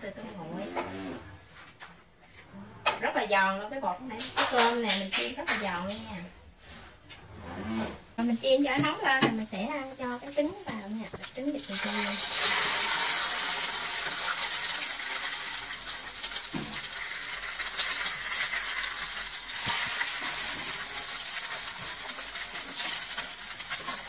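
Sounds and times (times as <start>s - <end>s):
food sizzling in hot oil: 8.2s - 24.0s.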